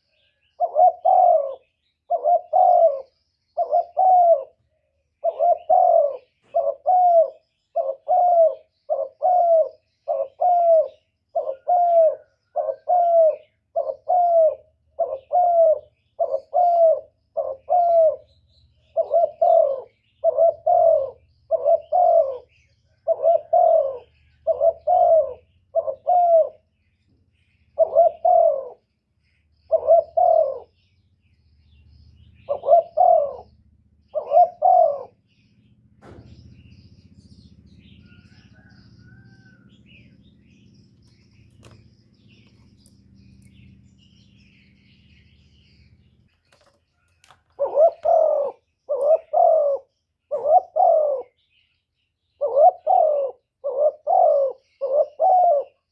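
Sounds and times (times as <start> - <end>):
dove cooing: 0.0 - 51.6, 52.2 - 55.9.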